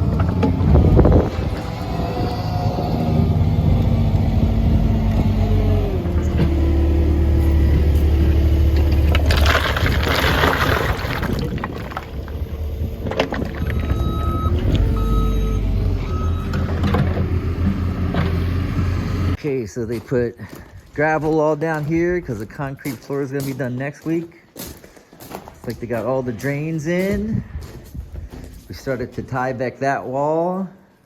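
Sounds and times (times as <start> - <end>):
heavy vehicle engine running: 0.0 - 9.4, 11.9 - 19.4
backup alarm beeping: 13.6 - 16.8.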